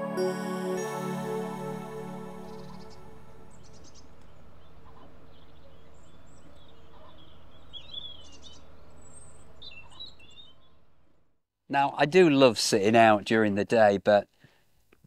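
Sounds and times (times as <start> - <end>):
small birds chirping: 2.3 - 11.3
low background hum: 2.4 - 11.4.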